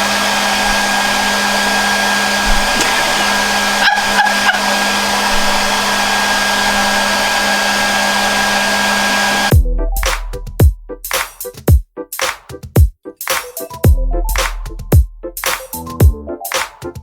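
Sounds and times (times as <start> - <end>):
hair dryer blowing air: 0.0 - 9.5.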